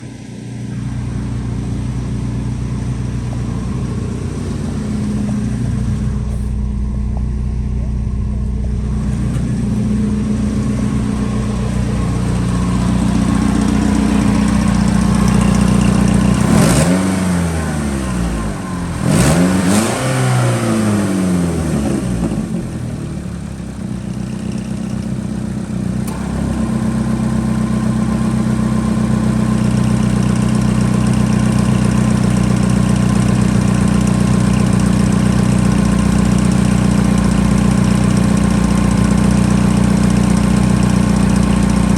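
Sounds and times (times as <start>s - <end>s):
car engine idling and revving: 0.0s - 41.9s.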